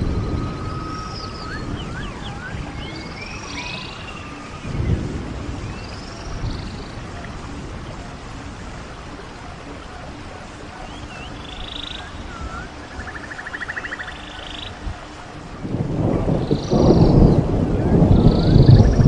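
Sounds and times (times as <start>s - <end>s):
rain-like noise: 0.0s - 19.0s
short chirping calls: 0.4s - 4.9s.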